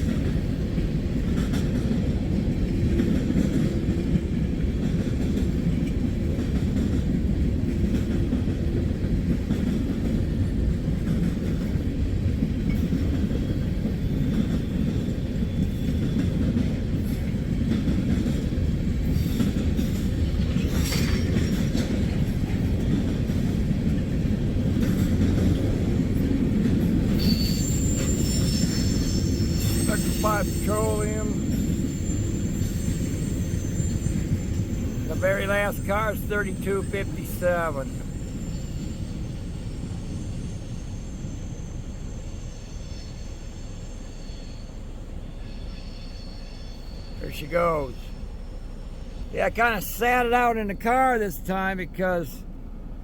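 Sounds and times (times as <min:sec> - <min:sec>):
freight cars rumbling on rails: 0:00.0 - 0:53.0
wheel squeal: 0:27.1 - 0:35.4, 0:36.8 - 0:49.2.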